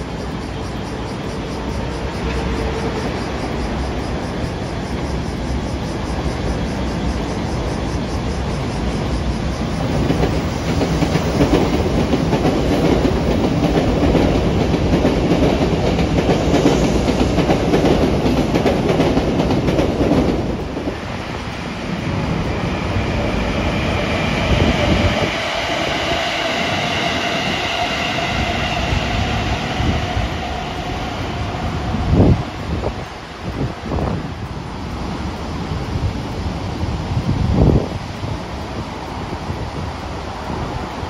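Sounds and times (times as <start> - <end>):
train wheels rumbling: 0.0 - 41.0
high whine rising in pitch: 21.9 - 33.3.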